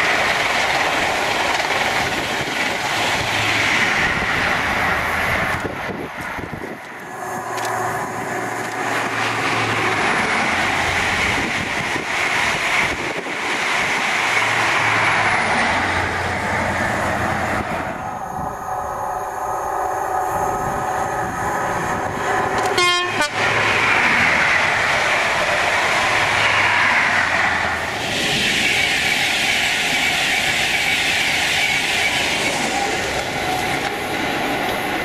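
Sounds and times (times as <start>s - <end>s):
train rushing past: 0.0s - 35.0s
train horn toot: 22.6s - 23.4s.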